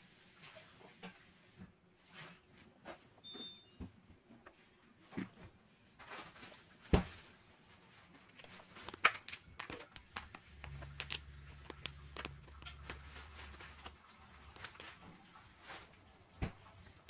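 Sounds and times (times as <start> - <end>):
low steady hum: 2.4 - 17.0
kitten eating: 8.3 - 17.0.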